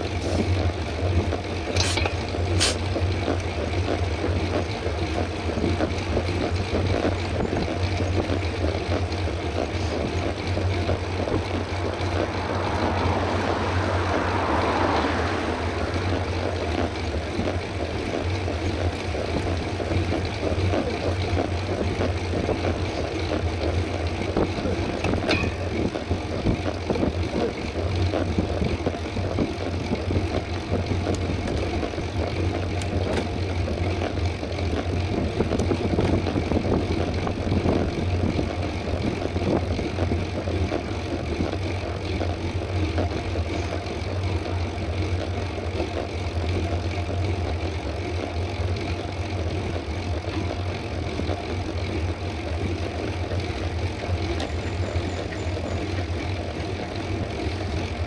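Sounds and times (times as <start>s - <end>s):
bike tyres on paved road: 0.0s - 58.0s
wind on microphone: 5.4s - 41.9s.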